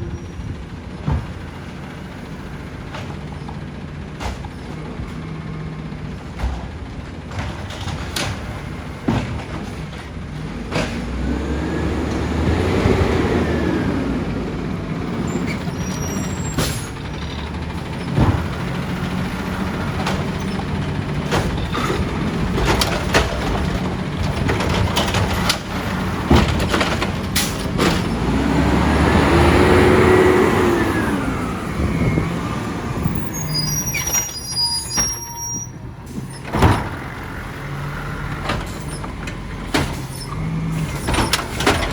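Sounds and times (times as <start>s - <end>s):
garbage truck engine revving: 0.1s - 41.9s
metallic clanks and knocks: 15.2s - 28.3s, 36.1s - 41.9s.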